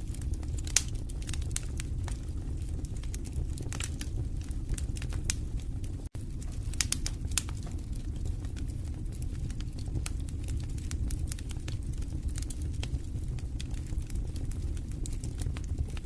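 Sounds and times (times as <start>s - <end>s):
wood fire crackling in fireplace: 0.0s - 16.0s.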